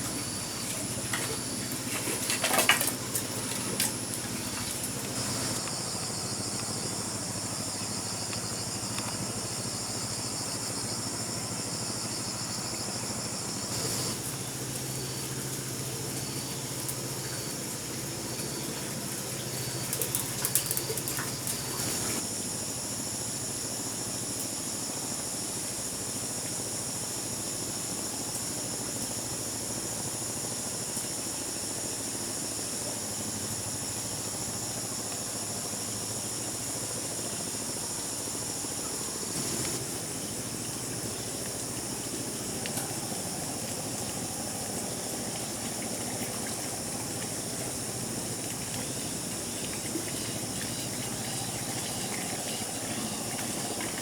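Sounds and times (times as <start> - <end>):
even hiss: 13.5 - 18.9, 37.0 - 54.0
high-pitched insect drone: 35.6 - 54.0.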